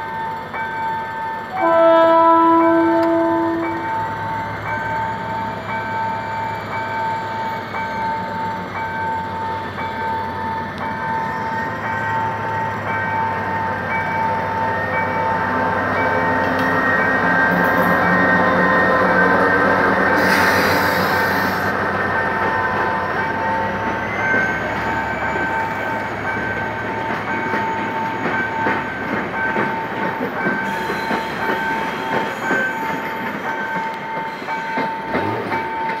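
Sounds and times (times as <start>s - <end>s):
diesel locomotive engine: 0.0s - 36.0s
high-pitched wheel squeal: 20.1s - 21.7s
wheels clicking over rail joints: 26.9s - 36.0s.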